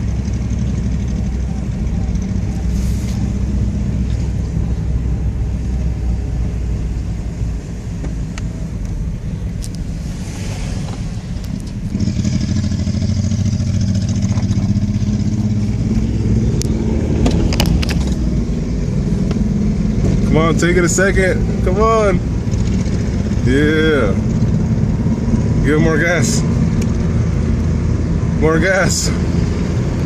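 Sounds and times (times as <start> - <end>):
motorcycle engine running: 0.0 - 5.0, 11.7 - 18.5, 21.4 - 25.4.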